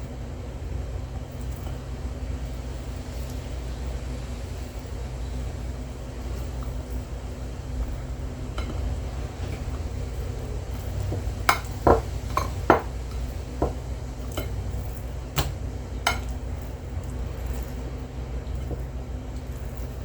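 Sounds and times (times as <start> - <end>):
steady low hum: 0.0 - 20.0
utensils clinking against dishes: 7.8 - 20.0.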